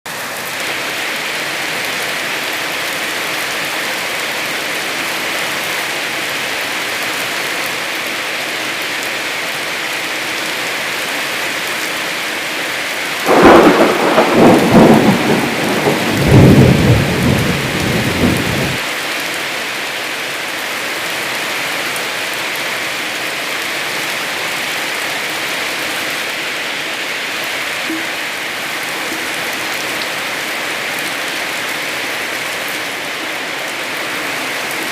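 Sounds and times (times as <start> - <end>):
heavy rain: 0.1 - 34.9
thunder cracking and rumbling: 13.2 - 18.8.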